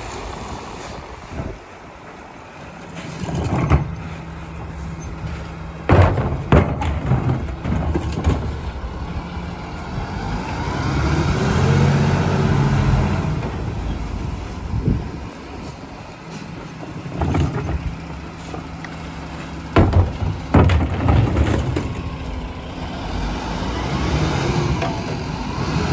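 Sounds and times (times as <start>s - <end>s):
garbage truck engine: 0.0s - 25.9s
hydraulic packer compacting: 0.1s - 25.9s.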